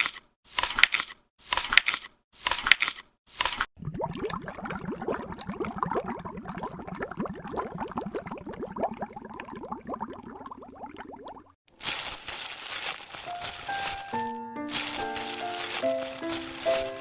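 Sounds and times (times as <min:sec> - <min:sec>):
liquid bubbling: 0:03.8 - 0:11.6.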